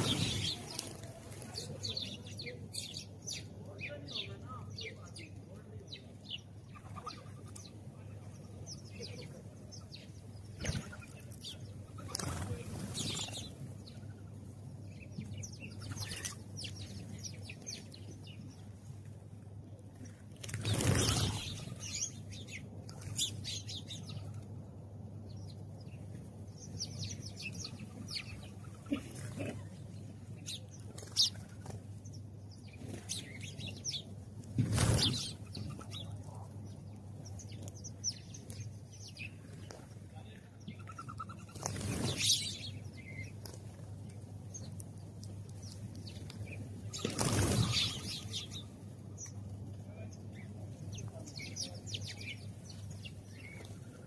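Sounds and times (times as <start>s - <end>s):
sparrows chirping: 0.0s - 54.0s
wings flapping: 12.0s - 13.6s, 20.4s - 22.0s, 34.5s - 36.0s, 40.9s - 42.7s, 45.6s - 48.6s.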